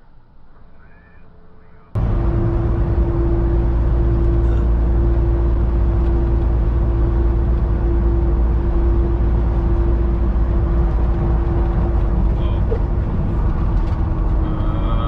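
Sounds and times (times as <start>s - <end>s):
constant hum: 0.0s - 15.0s
vehicle engine and road rumble: 0.0s - 15.0s.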